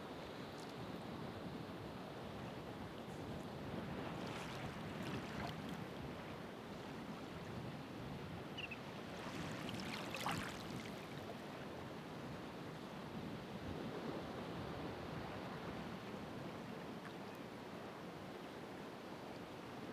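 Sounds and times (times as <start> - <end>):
ocean waves washing on shore: 1.7 - 19.1.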